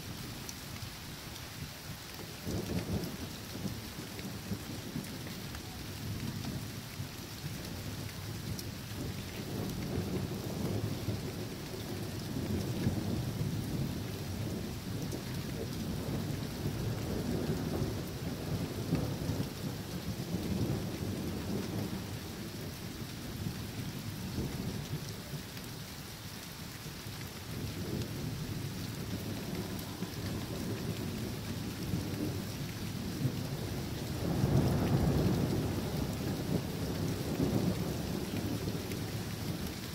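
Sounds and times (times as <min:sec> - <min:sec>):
steady rain hissing: 0:00.0 - 0:39.9
low rolling thunder: 0:07.8 - 0:25.4, 0:27.5 - 0:39.9.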